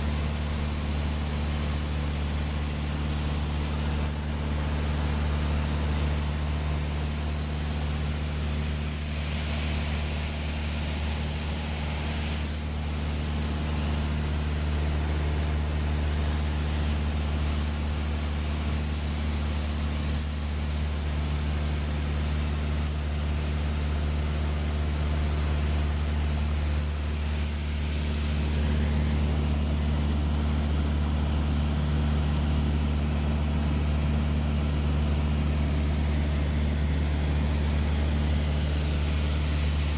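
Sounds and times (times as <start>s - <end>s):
aircraft piston engine drone: 21.8s - 31.8s, 34.2s - 39.9s.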